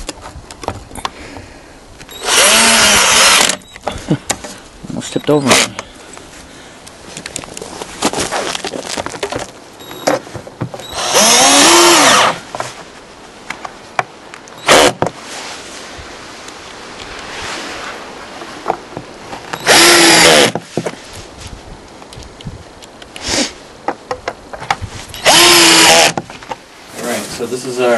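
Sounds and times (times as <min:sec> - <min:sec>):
cordless drill spinning: 0:02.1 - 0:03.6, 0:10.8 - 0:12.4, 0:19.6 - 0:20.6, 0:25.2 - 0:26.2
handling knocks and clicks: 0:07.1 - 0:10.9.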